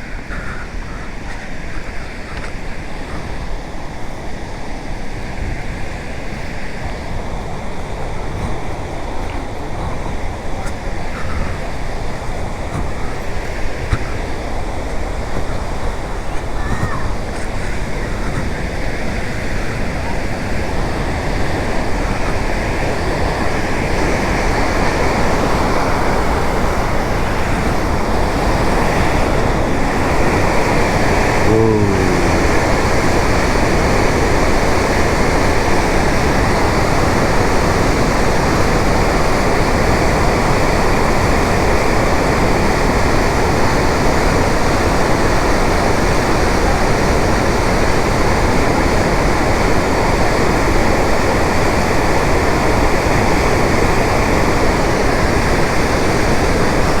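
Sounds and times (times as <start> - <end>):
waterfall rushing and crashing: 0.0 - 57.0
short pitched call: 30.9 - 33.1.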